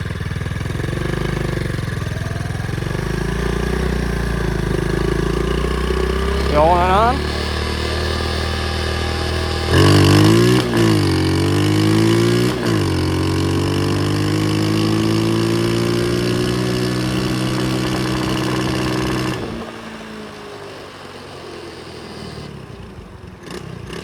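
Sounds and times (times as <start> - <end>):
pit bike engine revving: 2.6 - 19.7.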